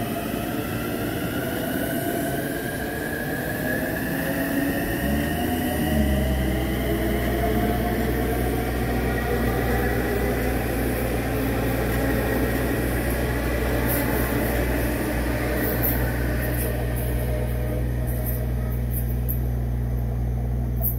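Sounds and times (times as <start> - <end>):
electric train hum: 0.0 - 20.9
wheels rolling on rails: 5.0 - 20.1.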